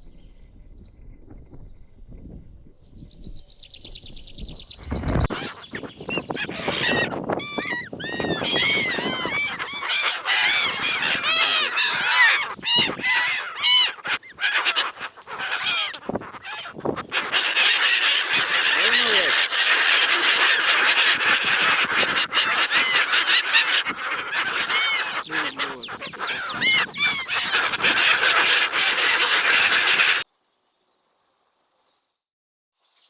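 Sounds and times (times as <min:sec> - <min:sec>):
high-pitched bird trill: 0:03.5 - 0:13.2, 0:24.7 - 0:27.6
chorus of many birds calling: 0:04.4 - 0:30.3.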